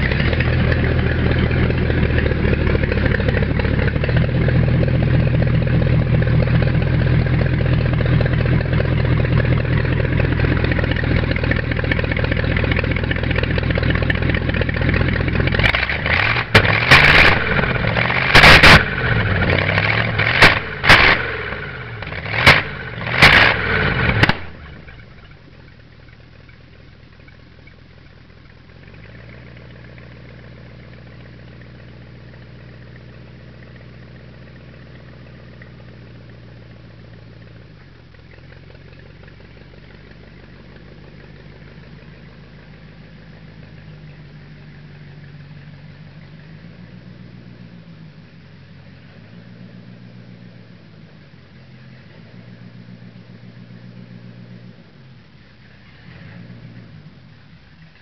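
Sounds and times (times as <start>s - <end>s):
faint steady engine: 0.0s - 58.0s
engine revving in blips: 7.2s - 25.4s, 38.2s - 58.0s.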